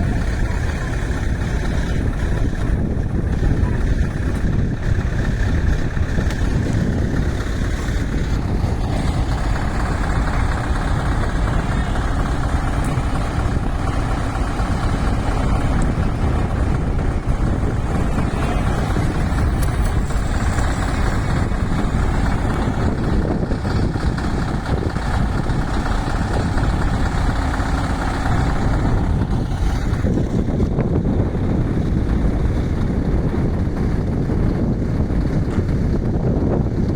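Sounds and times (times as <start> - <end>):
diesel truck engine running: 0.0 - 36.9.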